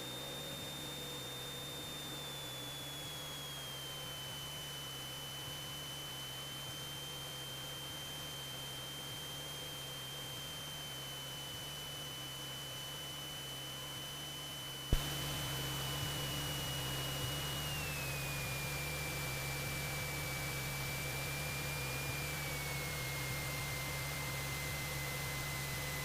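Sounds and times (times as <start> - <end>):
aircraft engine drone: 14.9 - 20.1.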